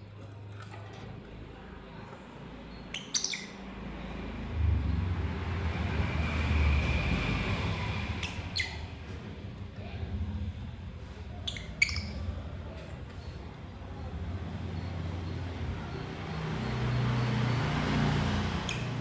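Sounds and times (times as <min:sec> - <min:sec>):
lovebirds chirping: 0:02.5 - 0:04.0, 0:11.3 - 0:19.0
low rumble: 0:04.1 - 0:15.9.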